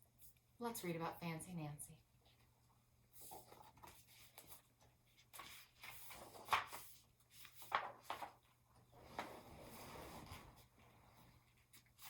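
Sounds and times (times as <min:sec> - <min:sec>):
book pages turning: 0:03.2 - 0:10.7.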